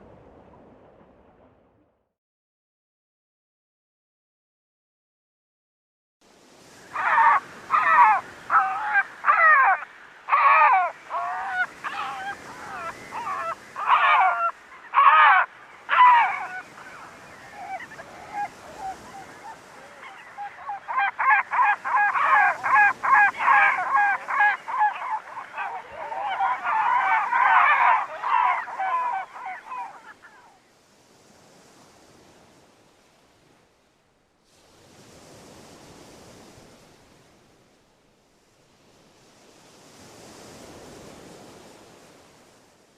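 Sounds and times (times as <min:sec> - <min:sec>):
harsh bird calls: 0:06.8 - 0:30.4.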